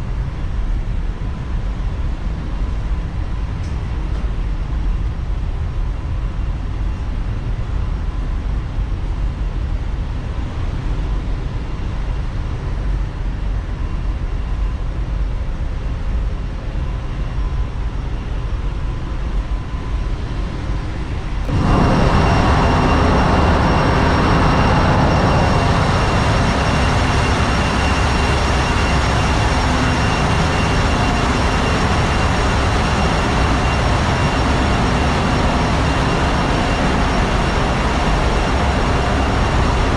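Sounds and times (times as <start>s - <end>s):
high-pitched machinery whines: 16.8s - 39.9s
engine-room machinery humming: 19.9s - 39.9s.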